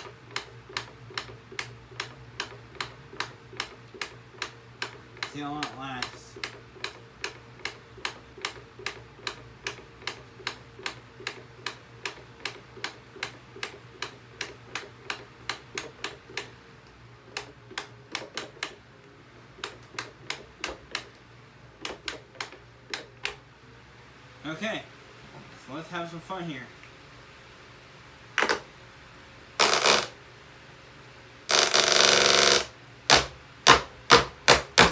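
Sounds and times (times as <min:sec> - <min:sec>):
electric fan humming: 0:00.0 - 0:34.9
clicks knocking against fan: 0:17.4 - 0:18.8, 0:19.6 - 0:21.1, 0:33.1 - 0:34.9.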